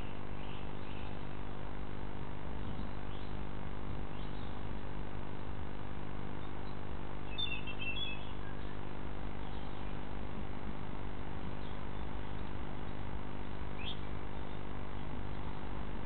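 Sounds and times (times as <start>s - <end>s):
low hum and hiss: 0.0s - 16.0s
high bird chirps: 6.4s - 8.8s.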